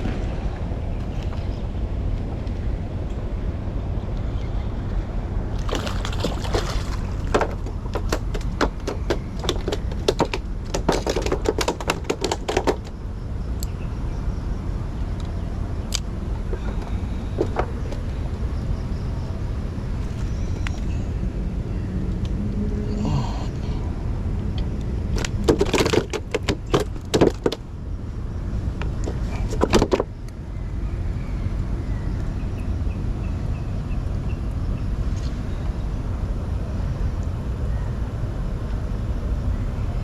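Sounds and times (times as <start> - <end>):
steady low rumble: 0.0 - 10.8, 12.8 - 25.5.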